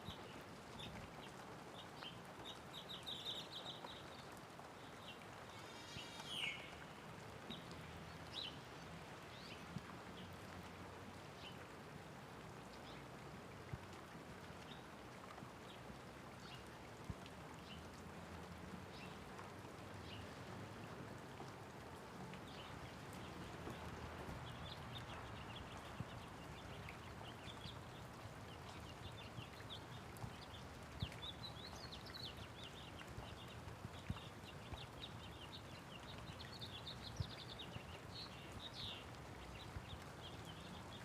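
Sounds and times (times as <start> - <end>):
small birds chirping: 0.0 - 10.6, 22.4 - 41.0
light rain falling: 0.0 - 41.0.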